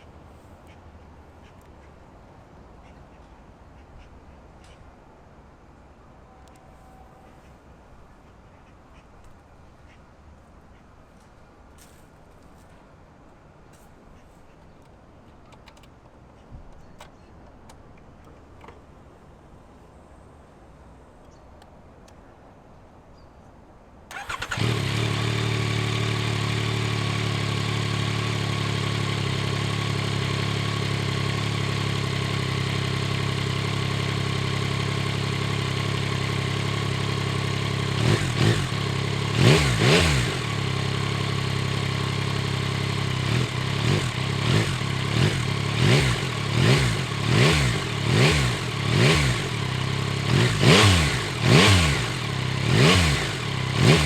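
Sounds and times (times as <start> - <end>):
motorcycle engine revving: 24.1 - 54.0
motorcycle engine starting and idling: 24.1 - 54.0.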